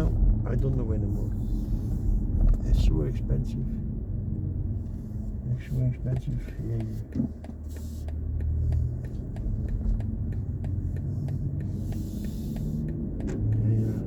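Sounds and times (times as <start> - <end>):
road and tyre rumble in car: 0.0 - 14.0
faint ticks: 6.1 - 13.8.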